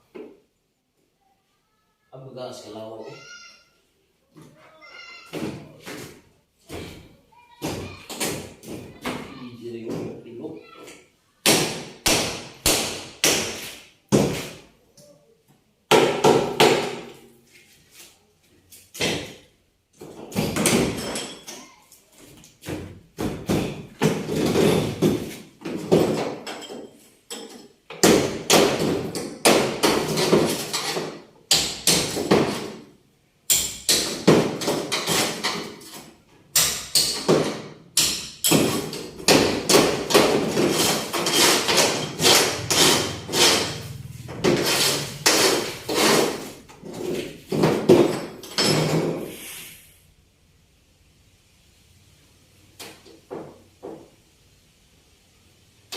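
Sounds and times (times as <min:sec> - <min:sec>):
hammer striking metal: 0:39.3 - 0:46.4.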